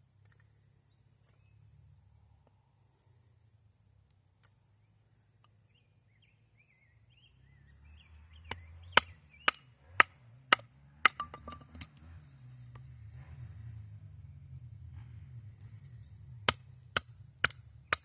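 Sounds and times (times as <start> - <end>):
axe chopping wood: 8.4 - 12.0, 16.4 - 18.0.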